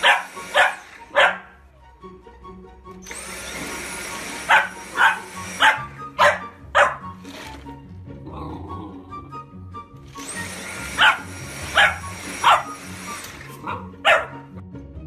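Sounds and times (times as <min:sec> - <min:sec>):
vacuum motor whining: 0:00.0 - 0:01.3, 0:02.8 - 0:07.9, 0:09.8 - 0:14.0
puppy barking: 0:00.0 - 0:01.6, 0:04.4 - 0:07.2, 0:10.9 - 0:12.8, 0:13.6 - 0:14.5
background music: 0:00.0 - 0:15.0.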